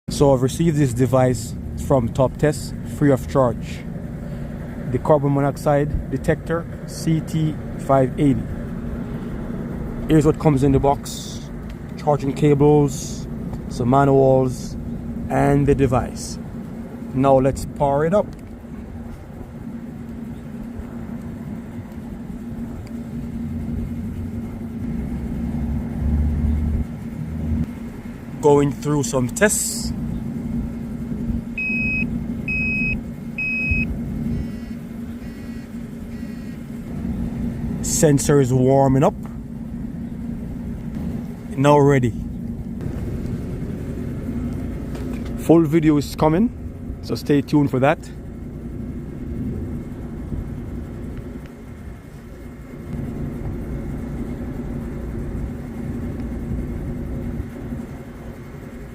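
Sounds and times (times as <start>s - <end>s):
low engine rumble: 0.1s - 58.9s
steady low hum: 0.1s - 58.9s
detector beeping: 31.5s - 36.6s.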